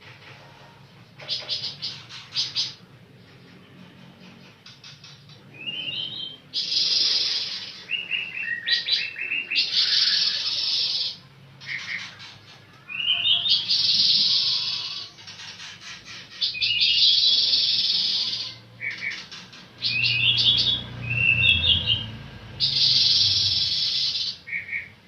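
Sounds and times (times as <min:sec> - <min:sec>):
songbird twittering: 0:16.2 - 0:25.0.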